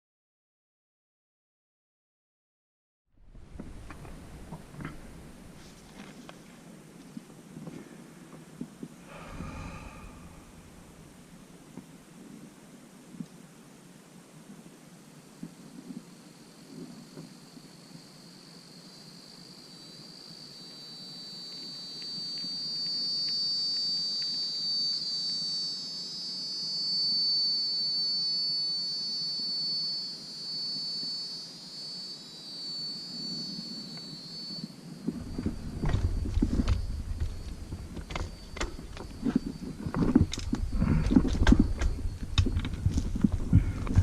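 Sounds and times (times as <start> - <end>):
rumble with sharp knocks: 3.3 - 5.4, 35.0 - 44.0
high insect drone: 3.5 - 44.0.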